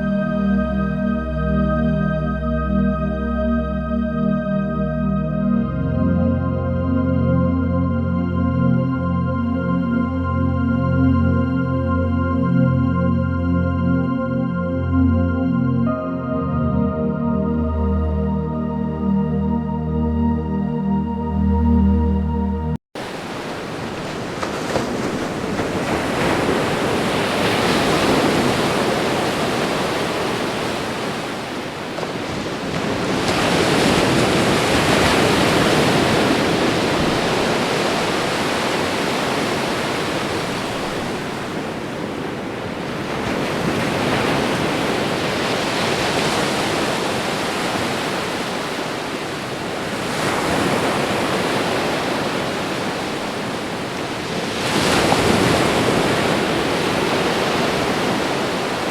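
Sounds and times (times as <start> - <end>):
waves breaking on shore: 23.0 - 58.9.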